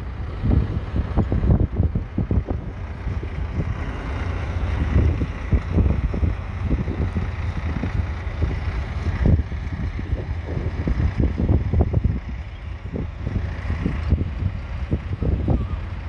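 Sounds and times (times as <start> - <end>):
tractor diesel engine running: 0.0 - 16.0
wind buffeting microphone: 0.0 - 16.0.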